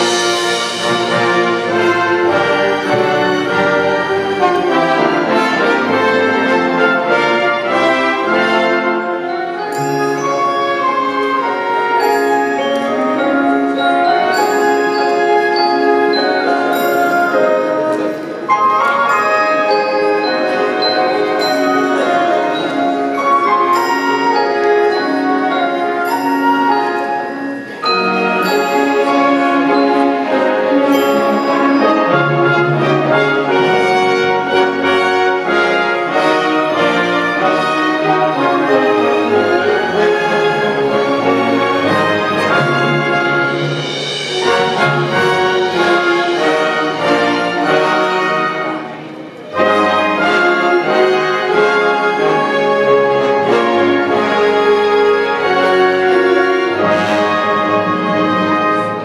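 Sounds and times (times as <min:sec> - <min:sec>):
orchestra playing: 0:00.0 - 0:59.0
mallet percussion ringing: 0:07.8 - 0:48.3.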